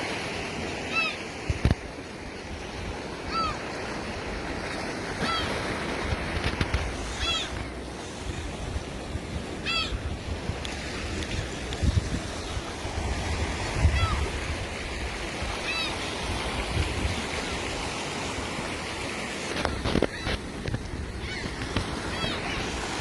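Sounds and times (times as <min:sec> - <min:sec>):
waves washing on beach: 0:00.0 - 0:23.0
bird short call: 0:07.2 - 0:07.6.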